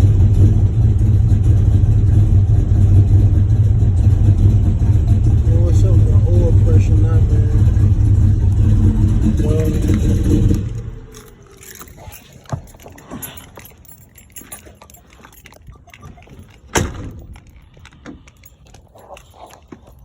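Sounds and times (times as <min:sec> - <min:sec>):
car engine running: 0:00.0 - 0:15.7.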